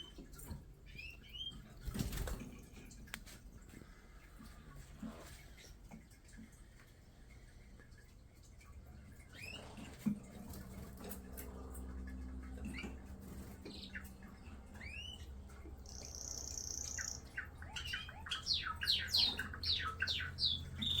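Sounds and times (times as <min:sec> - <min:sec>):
birds chirping and squawking: 0:00.0 - 0:02.3, 0:09.2 - 0:21.0
low steady hum: 0:00.0 - 0:21.0.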